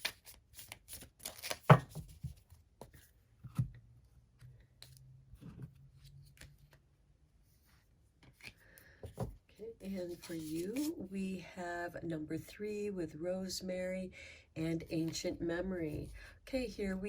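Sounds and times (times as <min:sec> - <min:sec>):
cards being shuffled: 0:00.0 - 0:03.0, 0:10.0 - 0:11.0.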